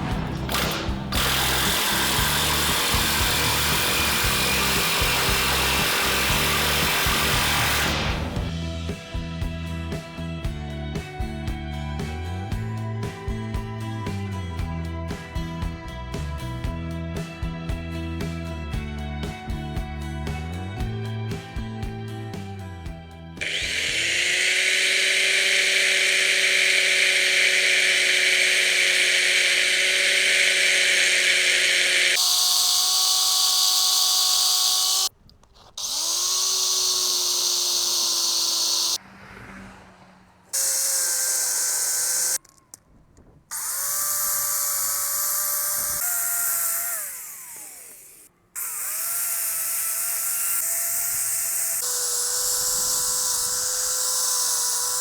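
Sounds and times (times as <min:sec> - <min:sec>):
power tool motor whining: 0:00.0 - 0:08.6, 0:23.4 - 0:39.0, 0:40.5 - 0:42.8, 0:43.5 - 0:55.0.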